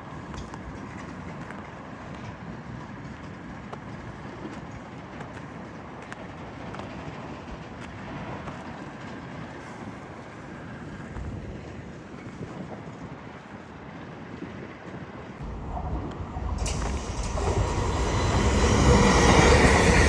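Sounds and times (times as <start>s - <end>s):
train rumbling on rails: 0.0s - 20.0s.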